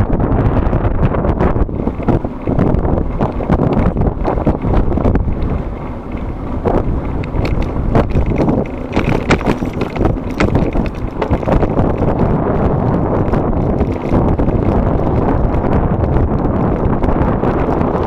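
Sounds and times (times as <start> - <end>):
wind buffeting microphone: 0.0 - 18.0
sharp clicks and knocks: 1.9 - 12.2.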